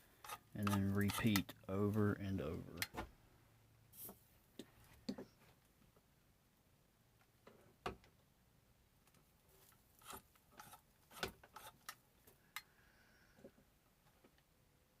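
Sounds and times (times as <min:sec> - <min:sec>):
soldering iron tip scraping: 0:00.2 - 0:01.6, 0:10.0 - 0:12.0.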